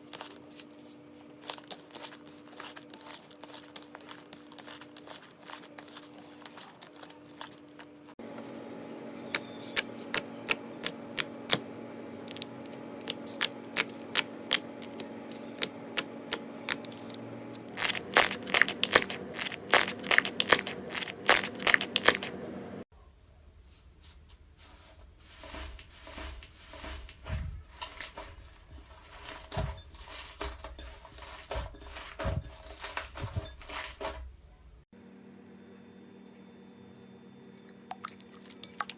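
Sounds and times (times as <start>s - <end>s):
slime squishing: 0.0s - 8.2s, 12.2s - 22.4s, 37.8s - 38.9s.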